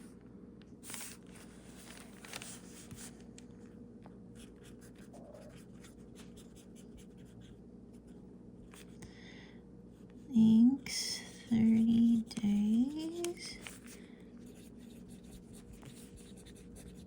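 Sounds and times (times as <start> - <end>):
pen scratching on paper: 12.2 - 13.9, 14.5 - 17.0.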